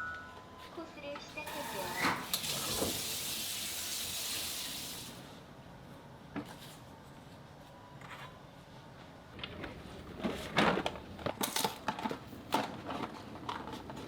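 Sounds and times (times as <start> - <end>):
tap running into a sink: 2.0 - 3.2.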